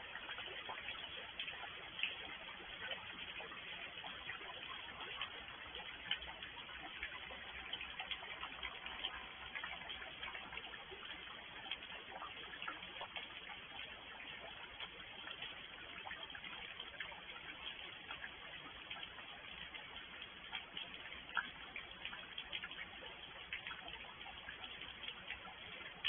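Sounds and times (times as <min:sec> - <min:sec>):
raindrops ticking and tapping: 0:00.0 - 0:26.0
steady rain hiss: 0:00.0 - 0:26.0.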